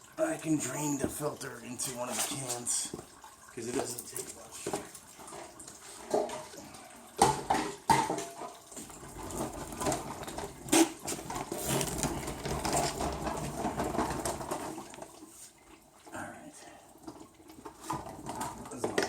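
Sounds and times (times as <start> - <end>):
oil draining into a can: 0.0 - 19.0
knocks of filter and can: 7.2 - 15.1, 17.6 - 19.0.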